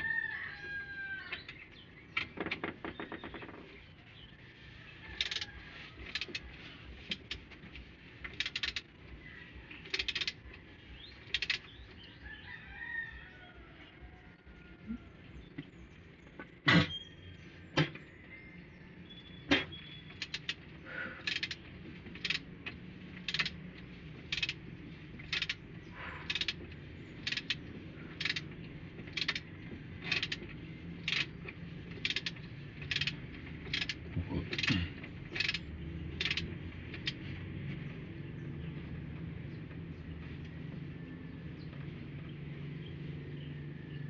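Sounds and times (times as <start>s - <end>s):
sharp metallic clicks: 8.2s - 8.9s, 9.8s - 11.8s, 19.5s - 24.6s, 25.2s - 25.6s, 26.2s - 37.2s.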